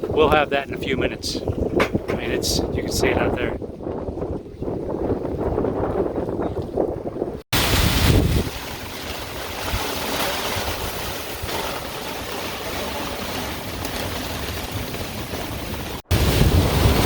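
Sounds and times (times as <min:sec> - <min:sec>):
wind buffeting microphone: 0:00.0 - 0:09.9.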